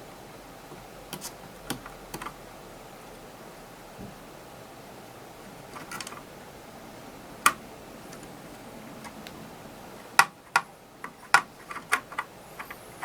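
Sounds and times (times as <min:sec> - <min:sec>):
tool clicks and taps: 0:00.7 - 0:02.4.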